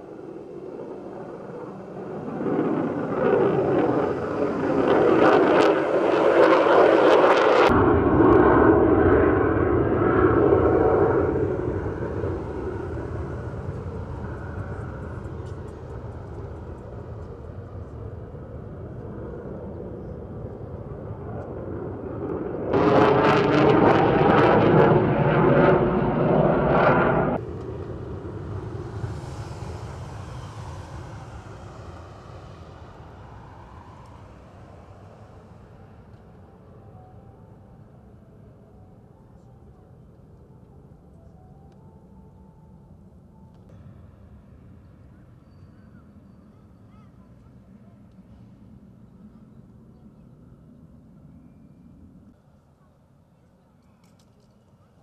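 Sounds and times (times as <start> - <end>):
jet aircraft taking off: 0.0 - 41.4.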